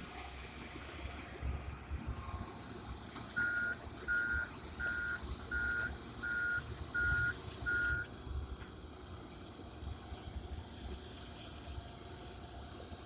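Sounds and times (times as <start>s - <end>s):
backup alarm beeping: 3.4s - 8.1s.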